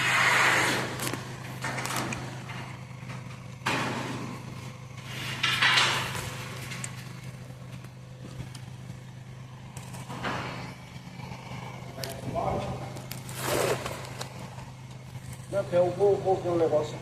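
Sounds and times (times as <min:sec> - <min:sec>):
loud rushing noises: 0:00.0 - 0:01.4.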